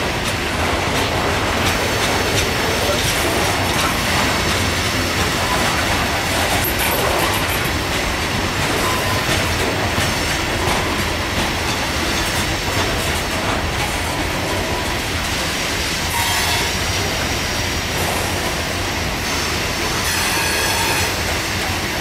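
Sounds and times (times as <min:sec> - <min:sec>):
steel wheels rumbling on rail: 0:00.0 - 0:22.0
wheels clicking over rail joints: 0:00.2 - 0:14.3.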